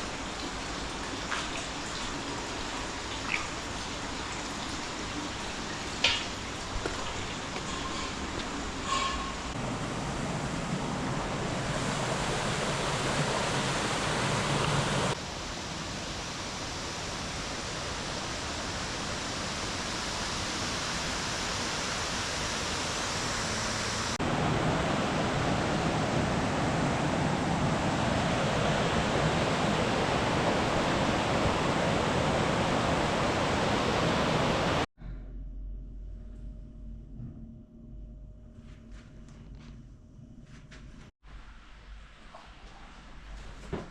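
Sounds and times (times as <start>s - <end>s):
flowing water rushing: 9.5s - 34.9s.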